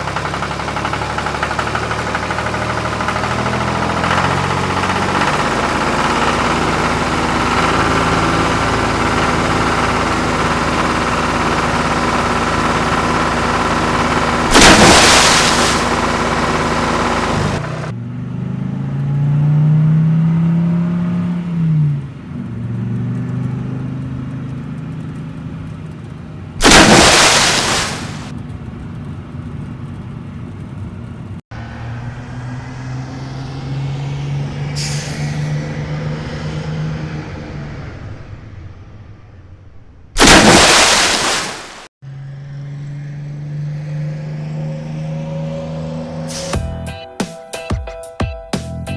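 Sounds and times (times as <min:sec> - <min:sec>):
engine revving: 0:00.0 - 0:22.1, 0:26.6 - 0:28.3, 0:31.5 - 0:46.8
truck engines running: 0:00.0 - 0:47.2
loud noisy bursts: 0:10.2 - 0:17.9, 0:26.6 - 0:28.3, 0:34.6 - 0:41.9.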